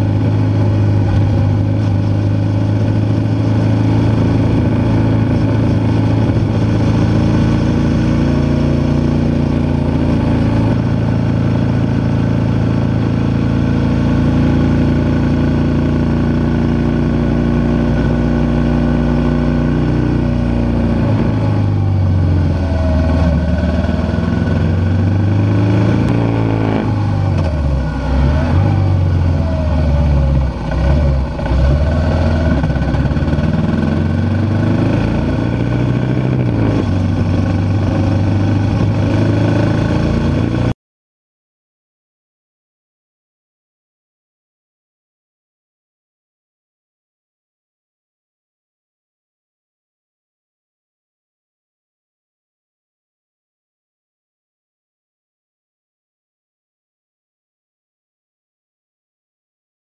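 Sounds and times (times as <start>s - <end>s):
motorcycle engine running: 0.0s - 40.7s
wind rush over microphone: 2.9s - 7.9s.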